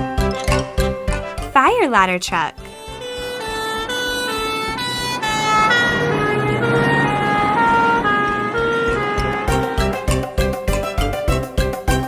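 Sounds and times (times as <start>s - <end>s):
fire truck siren wailing: 4.0s - 9.6s.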